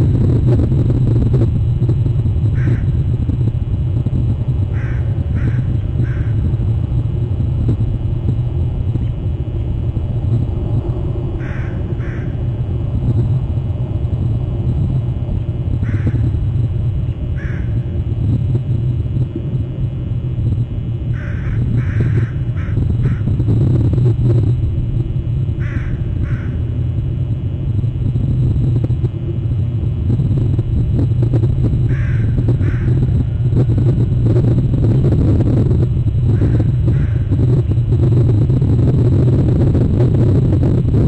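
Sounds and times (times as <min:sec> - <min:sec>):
low rumble: 0:00.0 - 0:41.0
crow cawing: 0:02.6 - 0:02.9, 0:04.7 - 0:06.4, 0:11.4 - 0:12.5, 0:15.8 - 0:16.2, 0:17.4 - 0:17.8, 0:21.1 - 0:23.3, 0:25.6 - 0:26.6, 0:31.9 - 0:33.0, 0:36.4 - 0:37.3.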